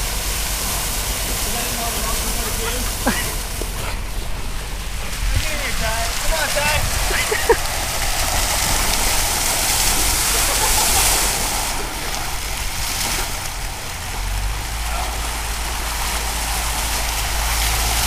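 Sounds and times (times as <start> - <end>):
water fountain spraying: 0.0 - 18.0.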